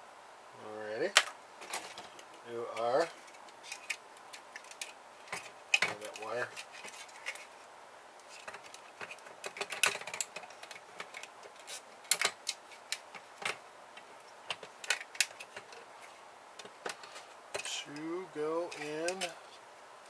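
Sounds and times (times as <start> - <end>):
tools clicking on plastic parts: 3.6 - 7.4, 8.3 - 13.6, 16.6 - 17.8, 18.7 - 19.3.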